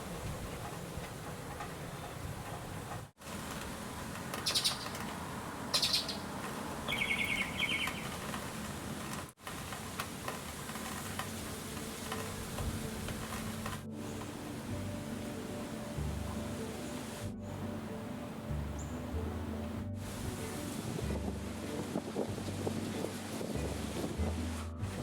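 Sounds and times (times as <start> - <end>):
birds chirping: 4.2 - 8.8
bird trilling: 4.4 - 5.1, 5.7 - 8.2.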